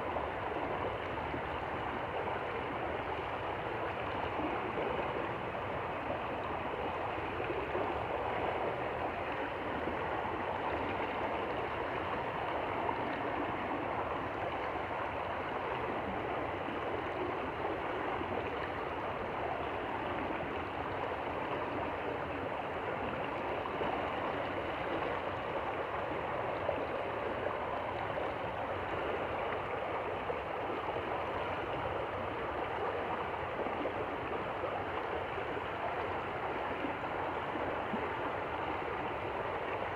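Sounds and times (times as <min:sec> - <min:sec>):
shallow stream babbling: 0:00.0 - 0:39.9.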